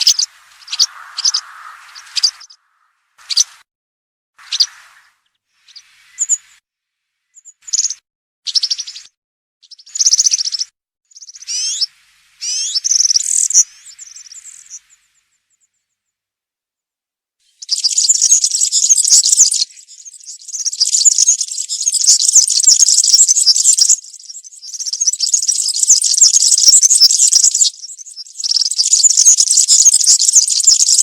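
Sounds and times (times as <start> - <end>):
bird singing high jingling trills: 0.0 - 2.6, 4.4 - 6.6, 9.7 - 15.0, 17.6 - 31.0.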